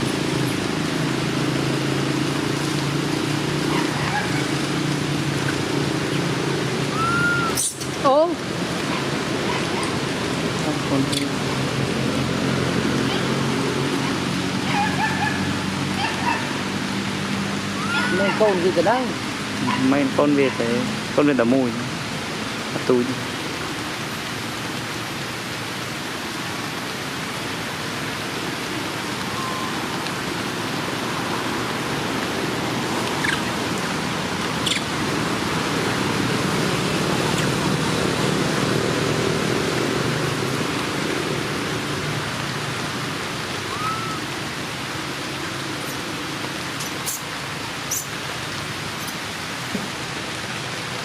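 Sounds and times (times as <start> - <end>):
steady rushing hiss: 20.8 - 51.0.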